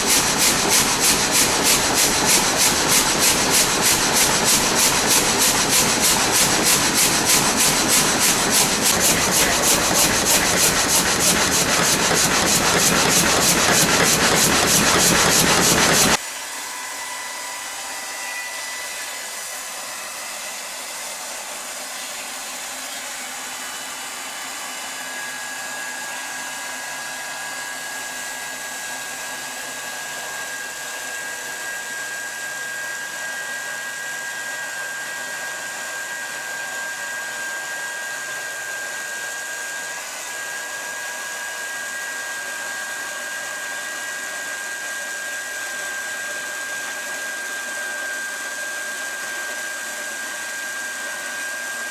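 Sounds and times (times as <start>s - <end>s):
high whine tone: 0.0s - 16.2s
motor-driven machine whirring: 0.0s - 16.2s.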